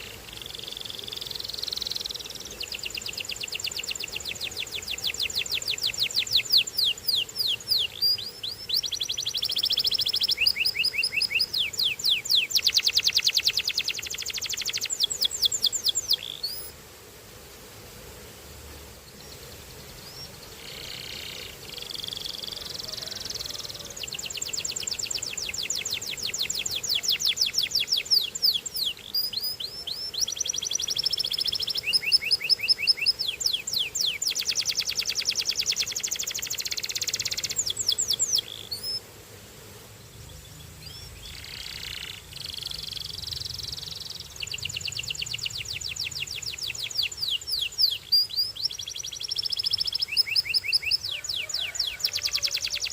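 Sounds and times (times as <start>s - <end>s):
canary singing trills: 0.0s - 16.7s, 20.0s - 39.0s, 40.3s - 52.9s.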